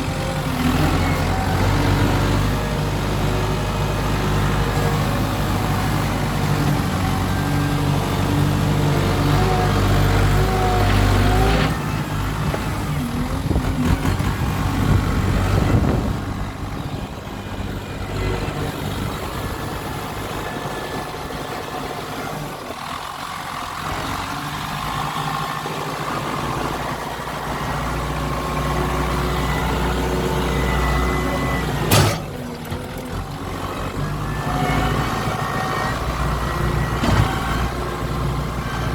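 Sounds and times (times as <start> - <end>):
engine rattle: 0.0 - 27.4
tractor diesel engine running: 0.0 - 38.9.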